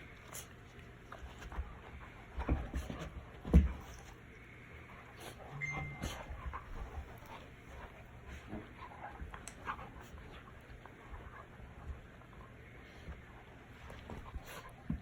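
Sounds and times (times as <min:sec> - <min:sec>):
puppies tapping and scuffling: 0:00.0 - 0:04.3, 0:05.2 - 0:15.0
puppy whining: 0:05.4 - 0:07.3.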